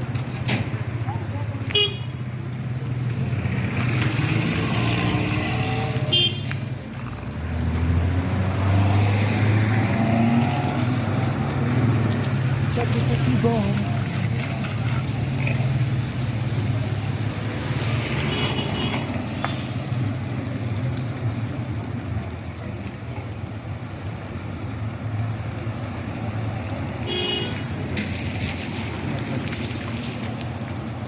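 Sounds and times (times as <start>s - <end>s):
vehicle engines rumbling: 0.0s - 31.0s
car horn toots: 6.1s - 6.5s, 27.1s - 27.6s.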